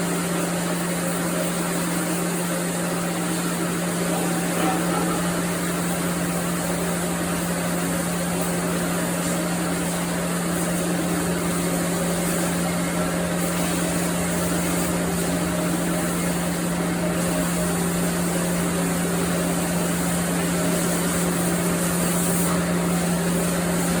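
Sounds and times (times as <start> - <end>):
sawmill machinery humming: 3.0 - 20.8.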